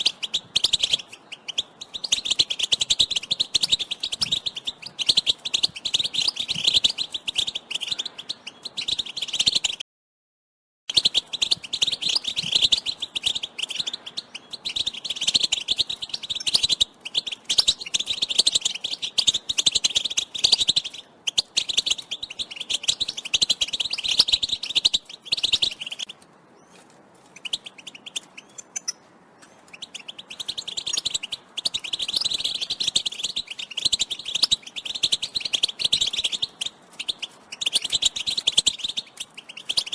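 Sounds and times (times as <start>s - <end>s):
goldfinch twittering: 27.4s - 39.9s.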